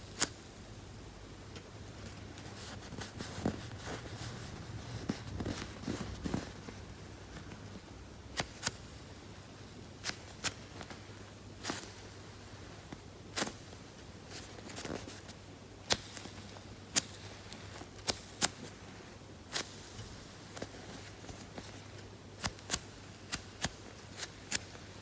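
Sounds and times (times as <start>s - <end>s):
faint low hum: 0.0s - 18.1s.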